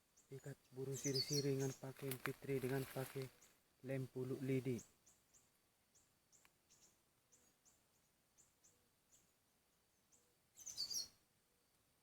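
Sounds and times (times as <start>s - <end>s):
high falling bird chirps: 0.1s - 1.9s, 4.7s - 11.2s.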